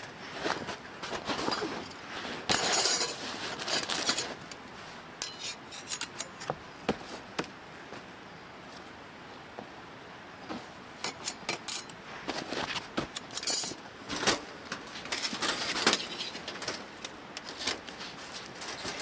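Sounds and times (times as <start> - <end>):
camp gear clinking and clattering: 0.4 - 4.6, 5.2 - 7.2, 11.0 - 19.0.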